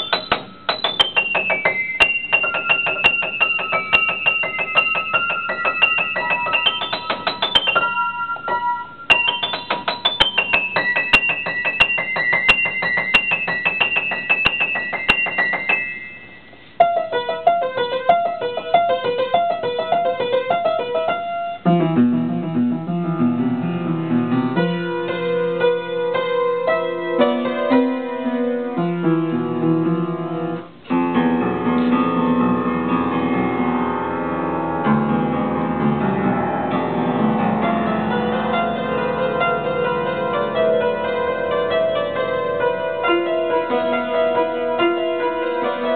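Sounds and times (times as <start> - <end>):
solo piano playing: 0.0 - 45.9.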